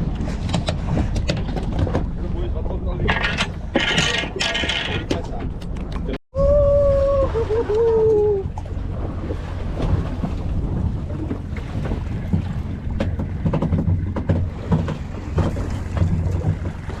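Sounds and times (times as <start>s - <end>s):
boat engine rumble: 0.0s - 17.0s
water washing around hull: 0.0s - 17.0s
wind buffeting microphone: 5.0s - 17.0s.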